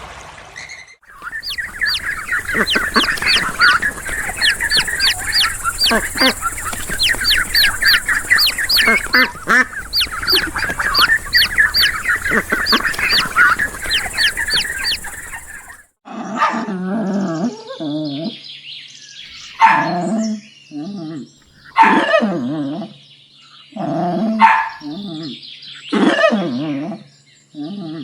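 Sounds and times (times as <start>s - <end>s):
birds chirping: 1.0s - 16.0s
dog barking: 16.3s - 16.7s, 19.6s - 20.1s, 21.7s - 22.4s, 24.3s - 25.0s.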